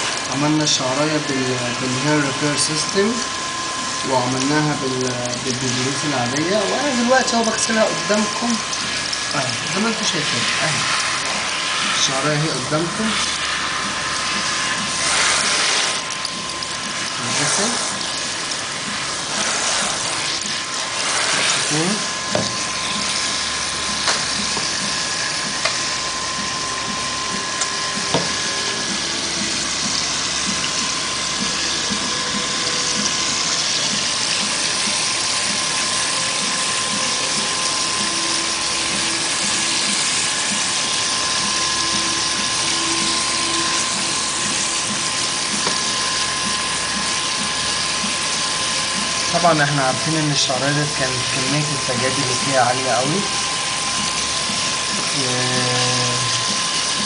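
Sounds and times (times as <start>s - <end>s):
tap water rinsing hair: 0.0s - 57.0s.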